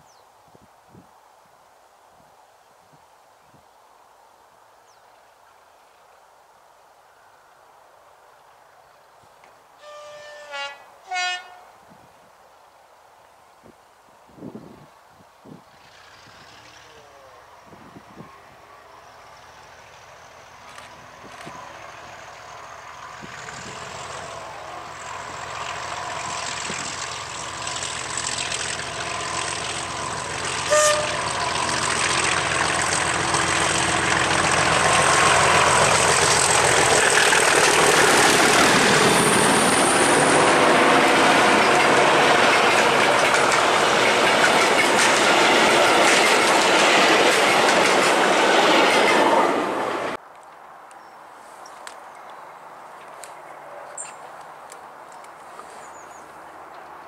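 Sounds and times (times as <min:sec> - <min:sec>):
diesel locomotive engine: 0:15.7 - 0:50.2
train wheels clattering over rails: 0:20.6 - 0:49.3.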